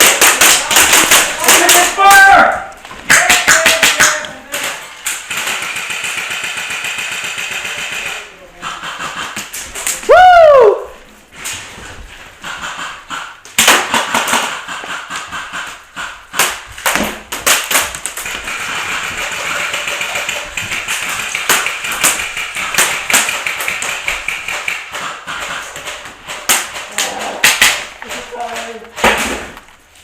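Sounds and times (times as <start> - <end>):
airsoft gun cracks: 13.5 - 28.1.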